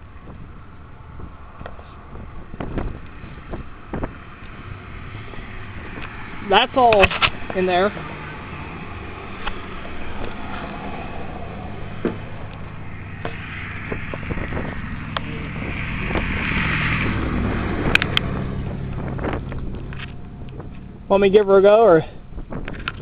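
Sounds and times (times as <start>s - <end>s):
car engine humming: 0.0s - 23.0s.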